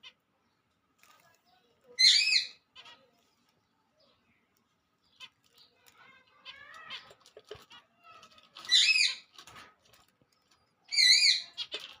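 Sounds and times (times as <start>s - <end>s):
soft bird chirps: 0.0s - 12.0s
loud high bird calls: 5.0s - 9.4s, 10.8s - 12.0s.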